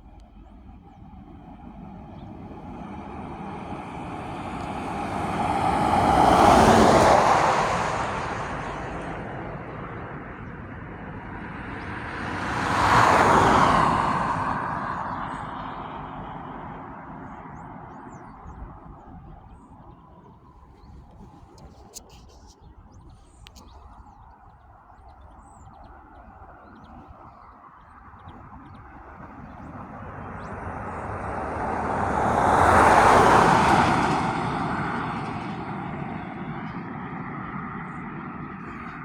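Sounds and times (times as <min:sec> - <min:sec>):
road noise: 0:00.0 - 0:39.0
vehicle engine passing: 0:02.0 - 0:18.6, 0:28.7 - 0:39.0.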